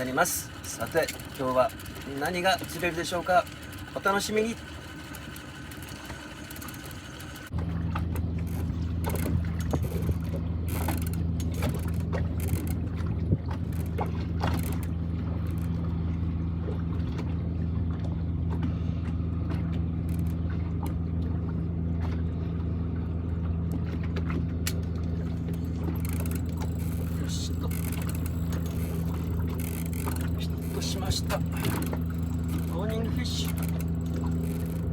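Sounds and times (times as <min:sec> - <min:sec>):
outboard motor humming: 0:00.0 - 0:34.9.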